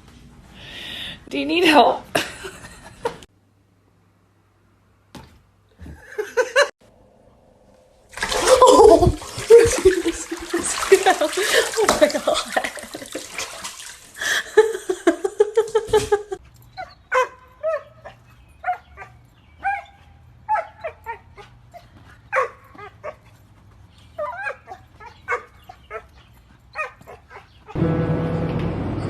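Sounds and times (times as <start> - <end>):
dog yipping and whimpering: 16.7 - 23.3, 24.1 - 27.8.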